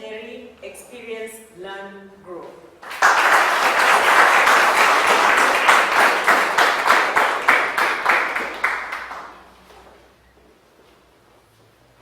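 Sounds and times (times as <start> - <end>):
audience applause: 2.8 - 9.4.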